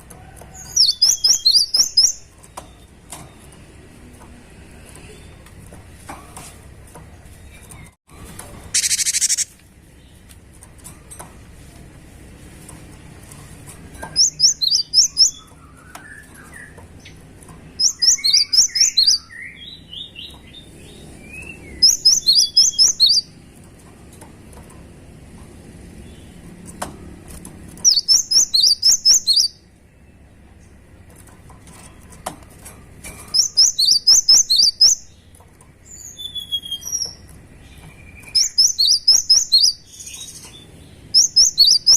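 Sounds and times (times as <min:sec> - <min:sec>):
bird whistled song: 0:00.6 - 0:02.8, 0:08.7 - 0:09.5, 0:14.1 - 0:17.2, 0:17.8 - 0:23.3, 0:27.8 - 0:29.6, 0:33.3 - 0:35.1, 0:35.9 - 0:41.9
soft low bird chirps: 0:08.8 - 0:09.6.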